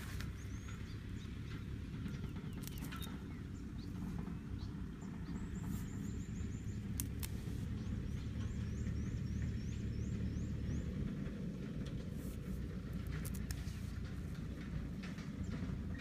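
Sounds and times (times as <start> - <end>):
bird chirping: 0.0 - 11.2
low rumble: 0.0 - 16.0
sharp clicks: 6.9 - 7.4.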